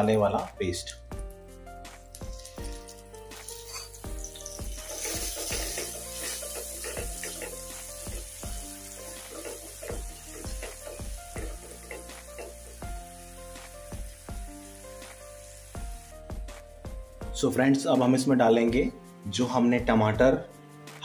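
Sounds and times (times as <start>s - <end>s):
background music: 0.0s - 21.0s
paste sizzling in hot oil: 2.0s - 17.0s.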